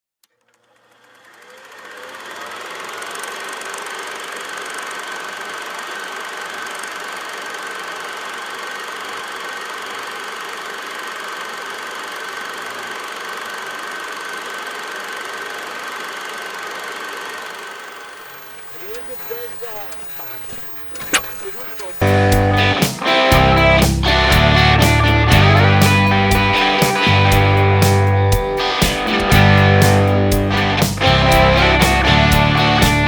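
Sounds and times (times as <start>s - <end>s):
high whine: 17.2s - 33.0s
vehicle engine running: 20.2s - 33.0s.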